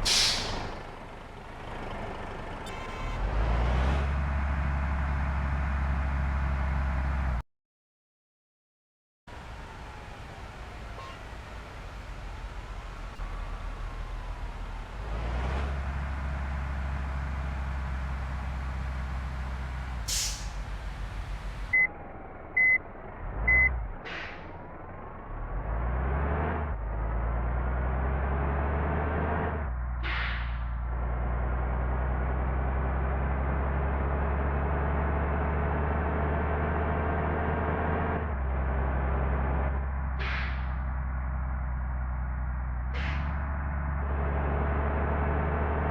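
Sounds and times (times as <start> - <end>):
short air hiss: 0.0 - 0.9, 20.1 - 20.7
bus diesel engine rumbling: 0.0 - 7.4, 9.3 - 45.9.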